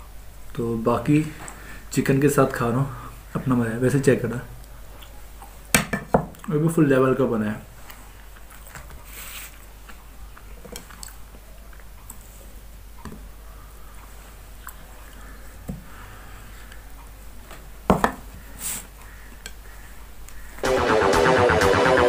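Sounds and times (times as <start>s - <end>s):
person chewing food: 8.2s - 12.3s.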